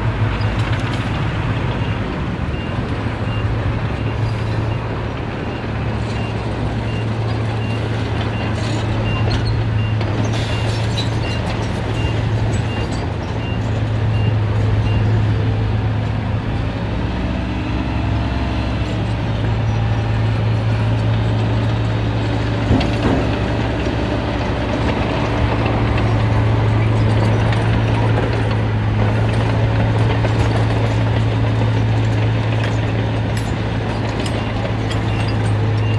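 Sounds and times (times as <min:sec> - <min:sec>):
diesel engine humming: 0:00.0 - 0:35.9
reversing alarm beeping: 0:34.3 - 0:35.9.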